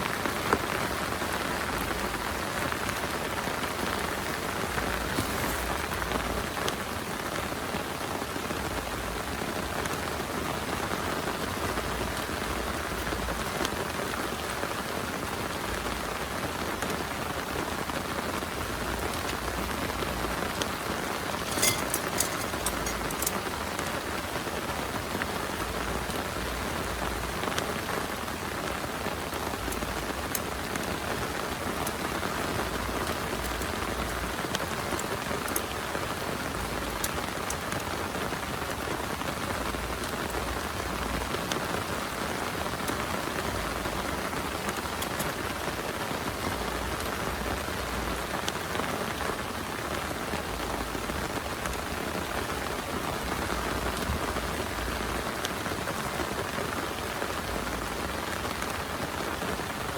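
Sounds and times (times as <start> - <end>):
heavy rain falling: 0.0 - 59.9
sharp raindrop impacts: 8.8 - 48.6.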